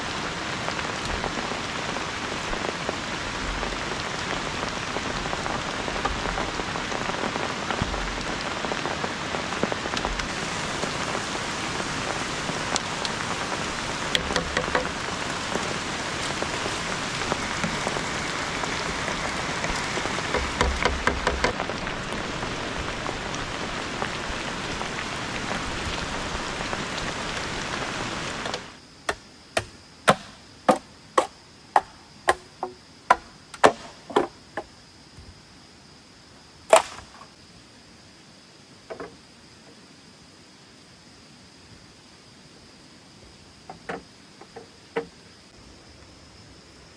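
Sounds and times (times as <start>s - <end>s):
heavy rain falling: 0.0s - 34.6s.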